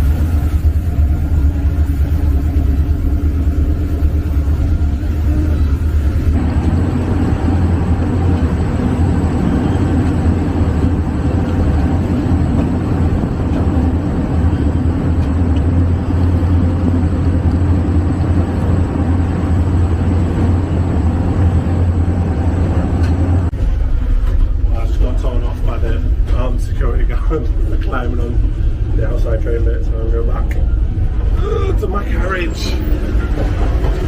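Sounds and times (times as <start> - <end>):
train rumbling: 0.0 - 34.0.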